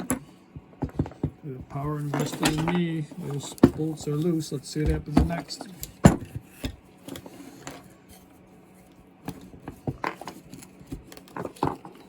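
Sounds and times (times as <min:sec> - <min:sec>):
hand tools clicking and knocking: 0:00.0 - 0:06.8.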